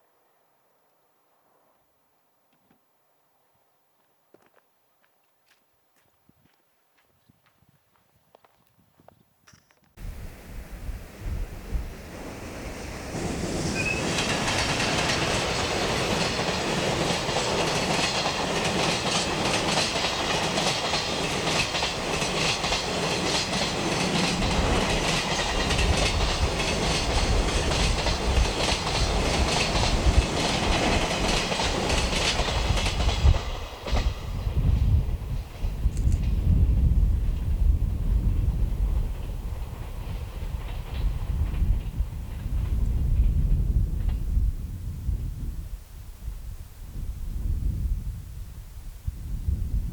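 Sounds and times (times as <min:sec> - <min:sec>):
freight train wheels clicking: 0:09.6 - 0:44.3.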